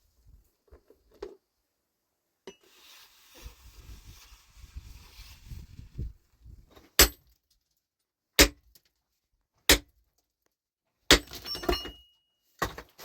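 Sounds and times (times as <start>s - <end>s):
hammer striking rock: 7.0s - 7.2s, 8.4s - 8.6s, 9.7s - 9.9s, 11.1s - 11.5s.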